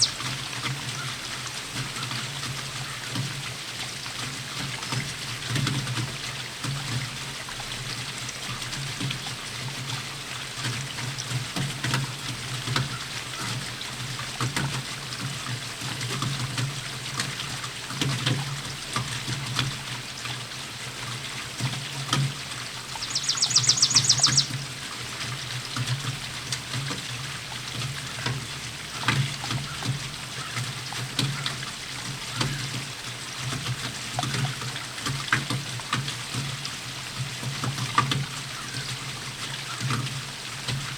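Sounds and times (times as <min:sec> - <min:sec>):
raindrops ticking: 0:00.0 - 0:03.4, 0:21.6 - 0:40.9
steady rainfall: 0:00.0 - 0:40.9.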